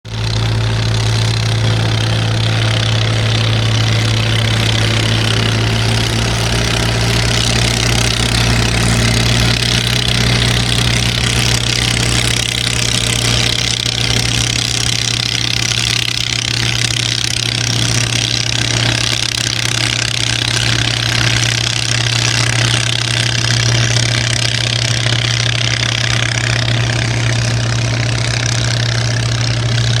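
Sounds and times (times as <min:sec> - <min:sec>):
boat engine running: 0:00.0 - 0:30.0.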